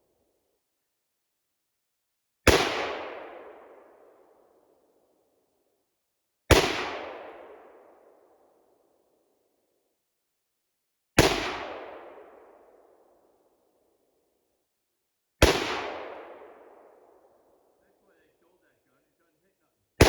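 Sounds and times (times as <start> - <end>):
gunshots with echo: 11.2 - 12.5, 15.4 - 17.0.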